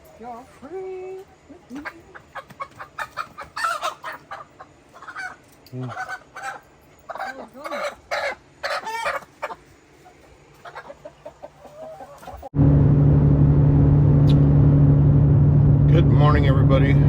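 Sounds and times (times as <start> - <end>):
chickens clucking: 1.4 - 12.5
road noise: 12.5 - 17.0
vehicle engine drone: 12.5 - 17.0.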